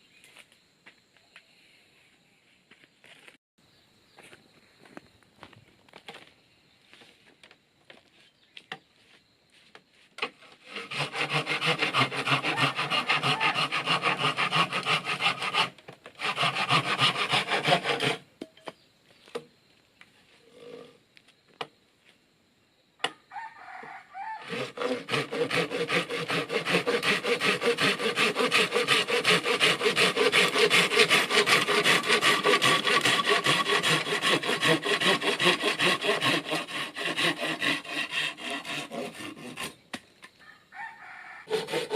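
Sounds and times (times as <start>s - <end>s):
saw cutting through bamboo: 10.2s - 18.2s, 24.4s - 39.9s, 41.5s - 41.9s.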